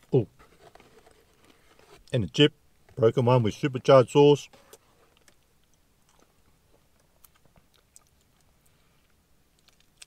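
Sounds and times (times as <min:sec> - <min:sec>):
soft chewing: 0:04.7 - 0:10.0.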